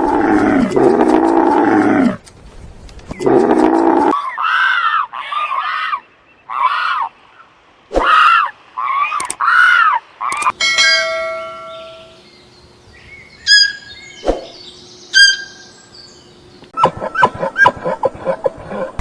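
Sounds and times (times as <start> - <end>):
run of struck notes: 10.5 - 12.4
sharp dings: 10.6 - 12.2
bell-like struck tone: 10.6 - 12.3.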